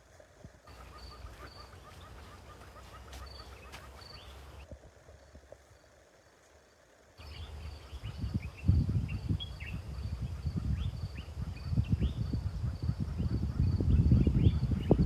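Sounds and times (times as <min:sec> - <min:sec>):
insect trill: 0:00.1 - 0:15.0
birds chirping: 0:00.6 - 0:04.7, 0:07.2 - 0:15.0
low microphone rumble: 0:07.2 - 0:15.0.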